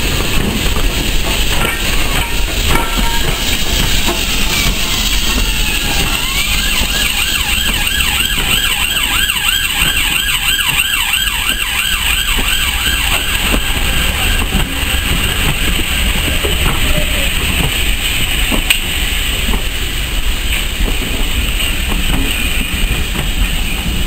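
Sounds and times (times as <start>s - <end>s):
train rumbling past: 0.0s - 24.0s
wavering train squeal: 1.6s - 17.2s.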